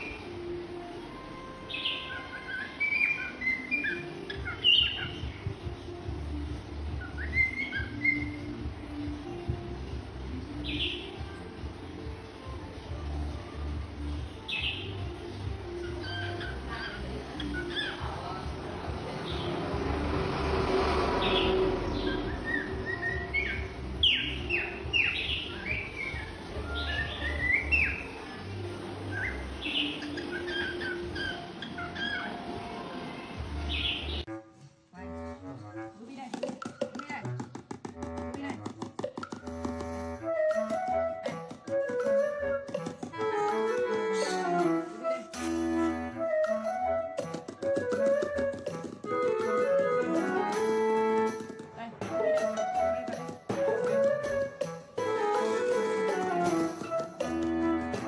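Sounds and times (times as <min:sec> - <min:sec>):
parrot chirping and whistling: 0:01.7 - 0:05.4, 0:06.9 - 0:08.6, 0:15.8 - 0:18.5, 0:21.2 - 0:28.2, 0:29.1 - 0:32.6.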